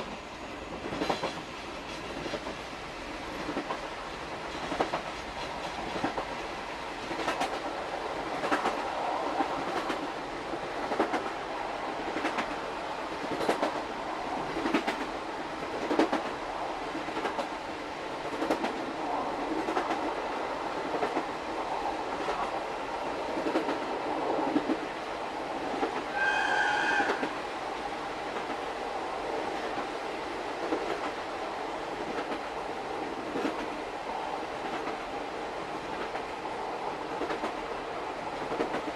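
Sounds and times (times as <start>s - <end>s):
train wheels clickety-clack: 0.0s - 38.9s
locomotive whistle: 26.1s - 27.4s.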